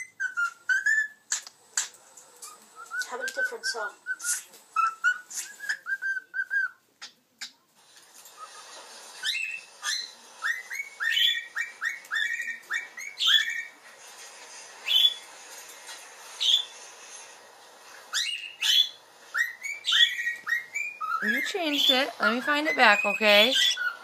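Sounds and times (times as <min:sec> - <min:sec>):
cockatiel whistling: 0:00.0 - 0:01.4, 0:02.4 - 0:07.5, 0:08.4 - 0:13.8, 0:14.8 - 0:15.3, 0:16.4 - 0:16.8, 0:18.1 - 0:24.0.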